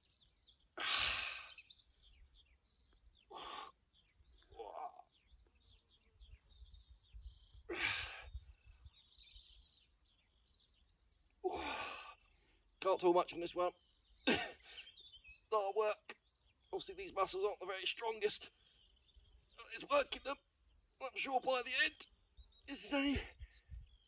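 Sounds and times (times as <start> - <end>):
small birds chirping: 0.0 - 24.0
man exhaling forcefully: 0.8 - 1.5, 7.7 - 8.3
man groaning with effort: 4.5 - 5.1, 11.4 - 12.1.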